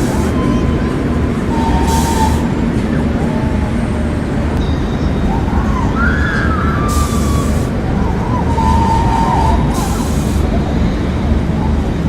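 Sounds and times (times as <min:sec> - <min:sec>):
ride machinery rumble: 0:00.0 - 0:12.0
burst of hiss: 0:01.8 - 0:02.5, 0:06.9 - 0:07.7, 0:09.3 - 0:10.6.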